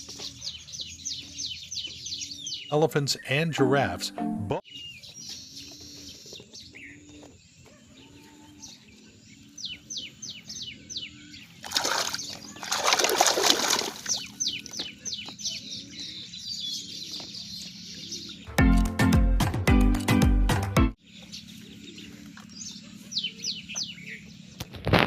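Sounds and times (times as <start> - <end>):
bird chirping: 0.0 - 18.5, 21.0 - 24.7
water splashing: 11.6 - 14.4.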